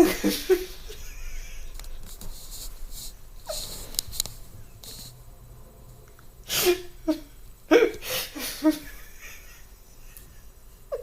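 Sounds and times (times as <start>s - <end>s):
woman's stifled laughter: 0.0s - 1.8s, 6.7s - 11.0s
sniffing breaths: 2.4s - 4.0s.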